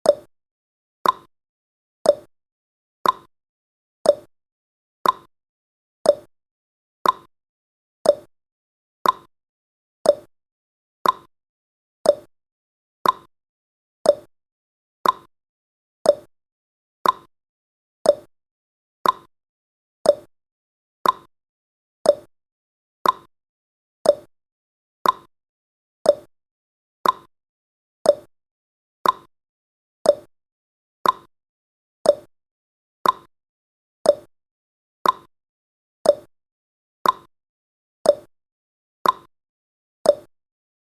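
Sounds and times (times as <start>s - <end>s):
timer ticking: 0.0s - 0.3s, 1.0s - 1.3s, 2.0s - 2.3s, 3.0s - 3.3s, 4.0s - 4.3s, 5.0s - 5.3s, 6.0s - 6.3s, 7.0s - 7.3s, 8.0s - 8.3s, 9.0s - 9.3s, 10.0s - 10.3s, 11.0s - 11.3s, 12.0s - 12.3s, 13.0s - 13.3s, 14.0s - 14.3s, 15.0s - 15.3s, 16.0s - 16.3s, 17.0s - 17.3s, 18.0s - 18.3s, 19.0s - 19.3s, 20.0s - 20.3s, 21.0s - 21.3s, 22.0s - 22.3s, 23.0s - 23.3s, 24.0s - 24.3s, 25.0s - 25.3s, 26.0s - 26.3s, 27.0s - 27.3s, 28.0s - 28.3s, 29.0s - 29.3s, 30.0s - 30.3s, 31.0s - 31.3s, 32.0s - 32.3s, 33.0s - 33.3s, 34.0s - 34.3s, 35.0s - 35.3s, 36.0s - 36.3s, 37.0s - 37.3s, 38.0s - 38.3s, 39.0s - 39.3s, 40.1s - 40.3s.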